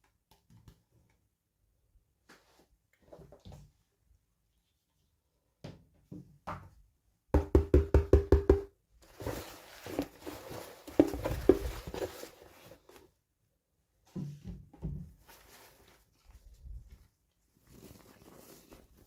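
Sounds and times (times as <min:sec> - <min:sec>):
packaging rustling: 0:09.0 - 0:13.1.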